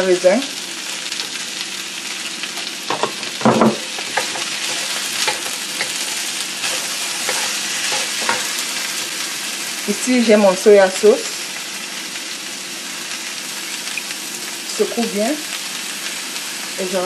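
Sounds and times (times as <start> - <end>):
vegetables sizzling in a wok: 0.0 - 17.0
pan and utensil knocks: 2.9 - 4.5.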